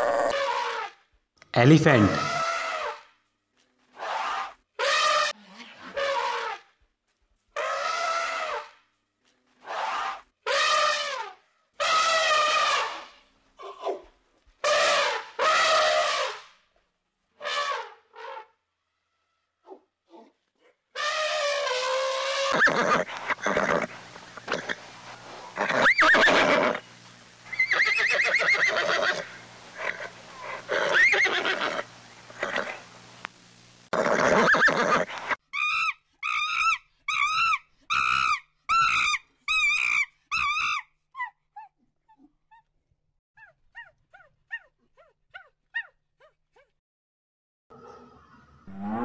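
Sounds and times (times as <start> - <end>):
donkey braying: 1.9 - 2.9, 21.0 - 26.8, 27.5 - 32.9.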